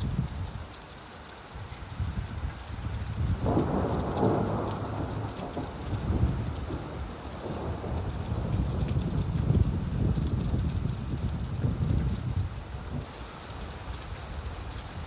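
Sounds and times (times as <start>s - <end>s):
steady rain: 0.0s - 15.0s
rolling thunder: 3.1s - 12.4s.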